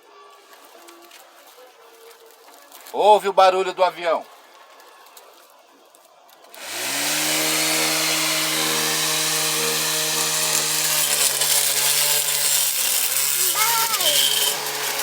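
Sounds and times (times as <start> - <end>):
blender motor whining: 6.6 - 15.0.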